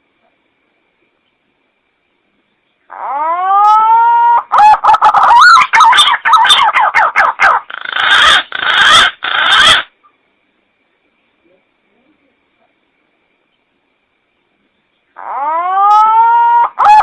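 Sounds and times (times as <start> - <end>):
pigeon calling: 2.9 - 9.9, 15.2 - 17.0.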